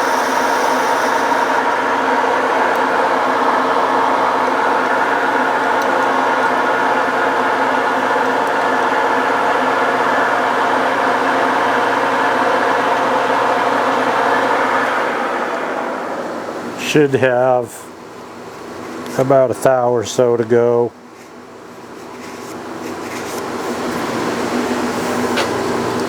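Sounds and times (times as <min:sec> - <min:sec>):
metal lathe humming: 0:00.0 - 0:16.9.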